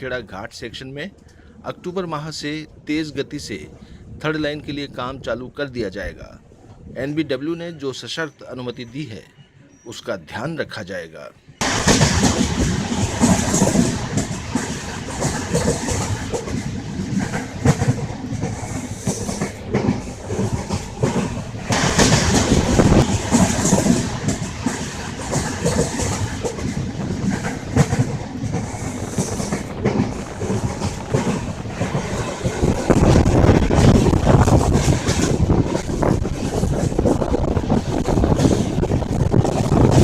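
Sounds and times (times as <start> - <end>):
train rumble and rush: 0.0 - 8.0, 11.4 - 40.0
wheels clacking over rail joints: 11.6 - 40.0.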